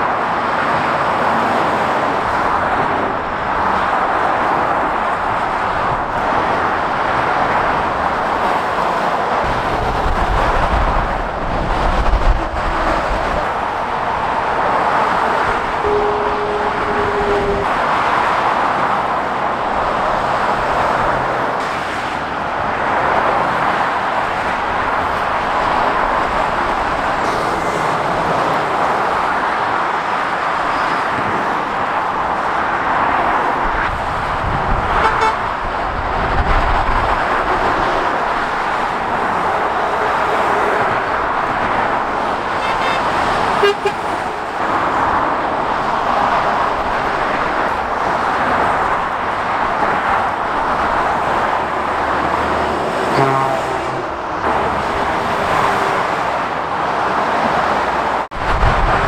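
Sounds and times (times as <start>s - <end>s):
motorway traffic: 0.0s - 59.0s
horn toots: 15.4s - 18.0s, 35.0s - 35.5s, 42.5s - 44.6s, 53.0s - 54.2s.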